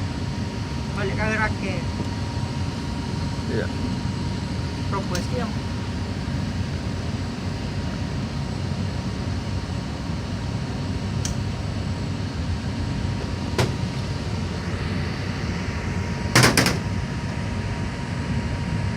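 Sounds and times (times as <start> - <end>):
low machinery rumble: 9.8 - 18.9
clatter of sharp knocks: 16.4 - 16.9.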